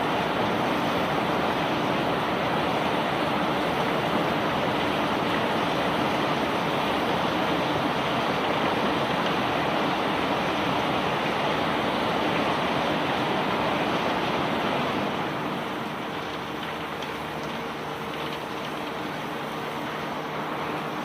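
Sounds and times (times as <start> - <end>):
conveyor belt carrying rock: 0.0 - 21.0.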